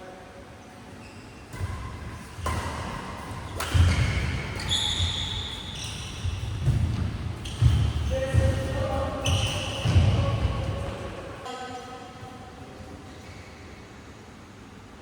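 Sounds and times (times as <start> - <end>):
shoes squealing on court floor: 0.9 - 1.8, 2.4 - 10.9
racket hitting shuttlecock: 1.5 - 10.8
footsteps thudding: 6.1 - 10.7.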